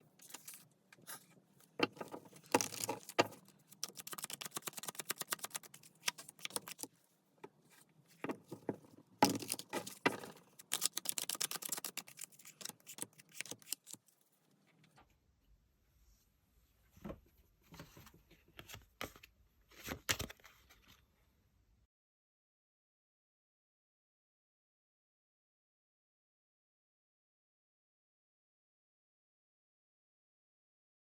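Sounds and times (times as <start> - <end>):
cards being shuffled: 0.2 - 1.3, 2.4 - 6.9, 9.2 - 14.0.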